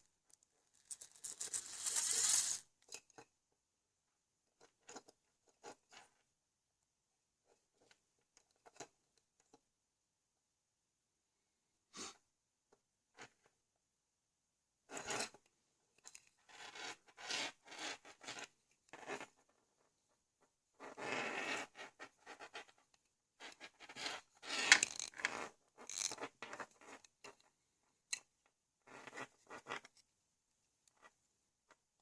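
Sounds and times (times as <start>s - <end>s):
plastic parts scraping and rubbing: 0.3s - 3.3s, 14.9s - 19.5s, 20.8s - 30.1s.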